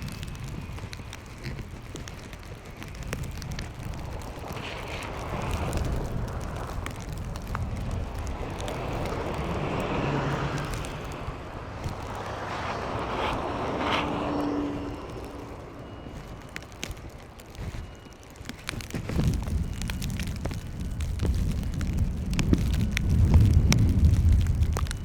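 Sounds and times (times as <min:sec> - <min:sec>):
vehicles passing: 0:00.0 - 0:17.8
low rumble of wind and traffic: 0:00.0 - 0:25.0.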